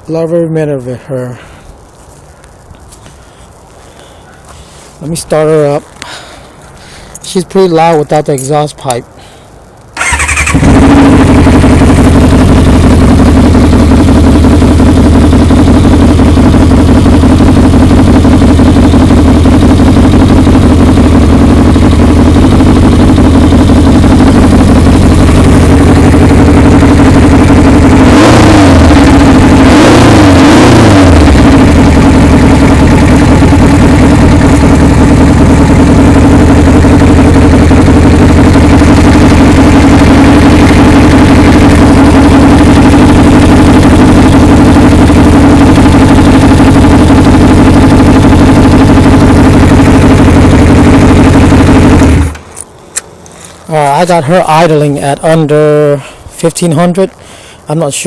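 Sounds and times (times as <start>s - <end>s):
motorcycle engine starting: 2.8s - 58.0s
motorcycle engine idling: 8.8s - 58.0s
engine revving: 9.8s - 56.2s.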